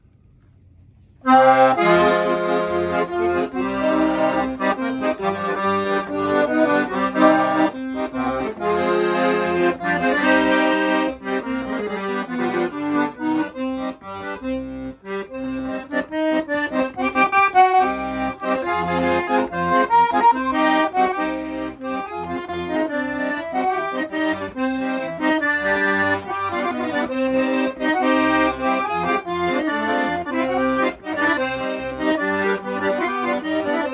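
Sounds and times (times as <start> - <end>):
accordion playing a tune: 1.2 - 33.9.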